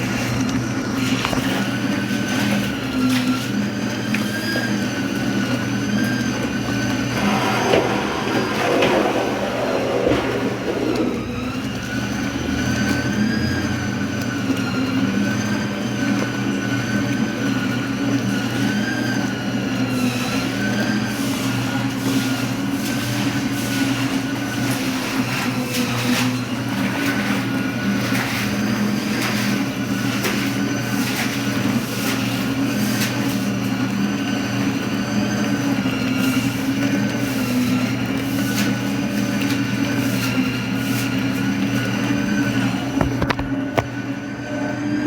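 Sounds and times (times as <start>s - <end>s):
washing machines agitating: 0.0s - 45.0s
water swishing strokes: 6.5s - 12.4s.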